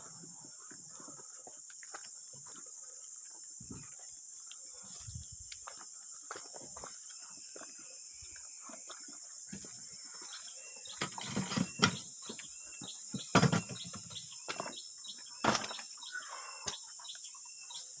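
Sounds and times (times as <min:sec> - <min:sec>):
loud knocks and thuds: 0:13.1 - 0:14.0.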